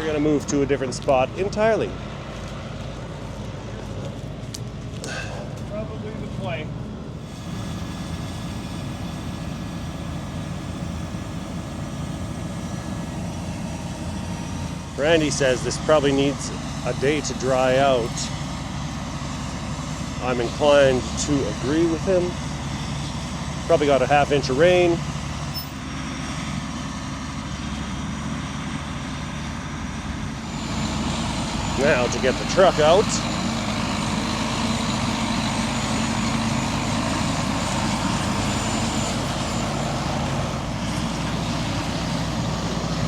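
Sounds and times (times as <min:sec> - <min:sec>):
diesel engine droning: 0:00.0 - 0:43.0
faint high whine: 0:07.2 - 0:18.4.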